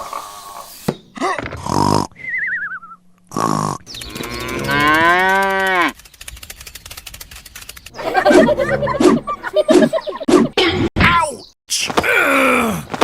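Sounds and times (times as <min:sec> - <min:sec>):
rapid ticking: 0:03.9 - 0:08.0
cow mooing: 0:04.1 - 0:05.9, 0:08.0 - 0:09.3.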